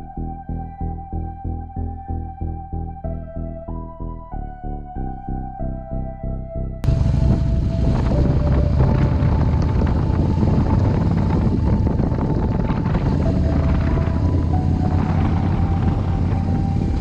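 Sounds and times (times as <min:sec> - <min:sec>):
motorcycle engine rumble: 0:06.8 - 0:17.0
wind buffeting on microphone: 0:06.8 - 0:17.0.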